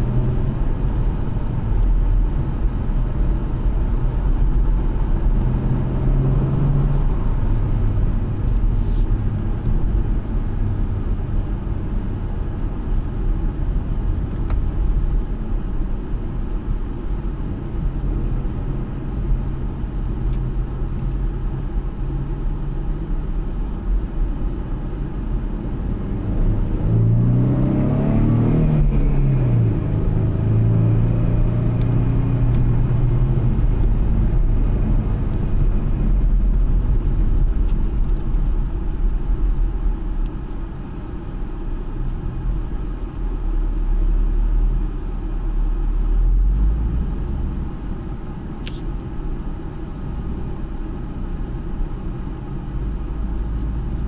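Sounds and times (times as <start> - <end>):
car engine cruising: 0.0 - 54.0.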